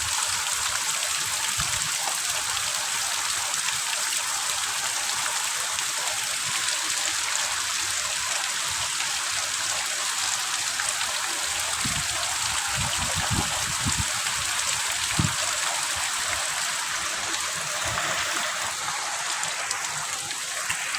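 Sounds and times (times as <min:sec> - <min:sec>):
heavy rain falling: 0:11.0 - 0:20.9.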